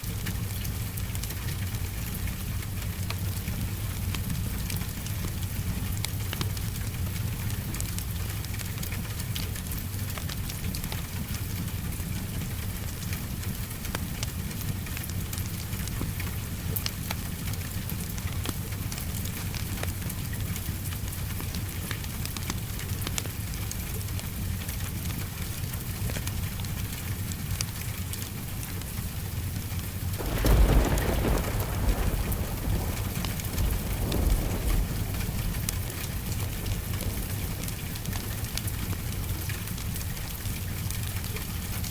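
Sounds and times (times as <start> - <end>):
steady rain: 0.0 - 41.9
wood fire crackling: 24.9 - 41.9
thunder rumbling: 30.2 - 40.2.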